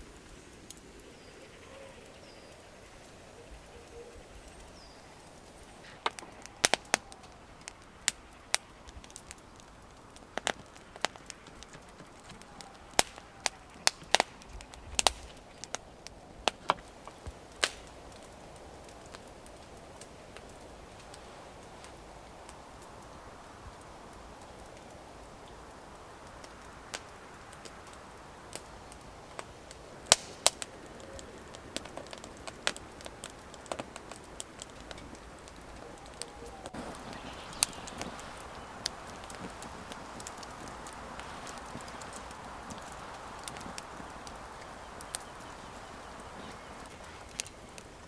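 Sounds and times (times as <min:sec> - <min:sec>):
campfire crackling: 0:00.0 - 0:48.0.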